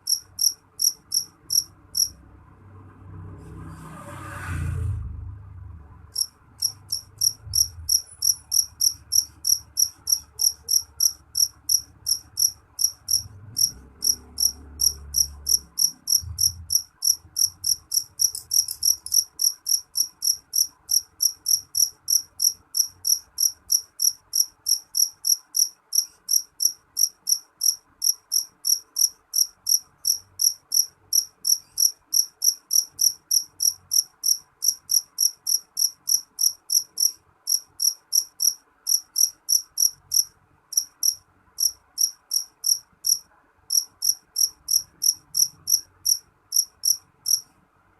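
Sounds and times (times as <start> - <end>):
cricket chirping: 0.0 - 2.2, 6.1 - 47.5
faint low rumble: 1.2 - 19.2.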